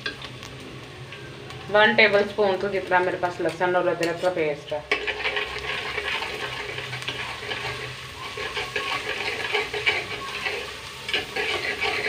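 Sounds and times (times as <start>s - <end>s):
onions frying in hot oil: 0.0s - 12.0s
metal spoon stirring: 4.0s - 12.0s.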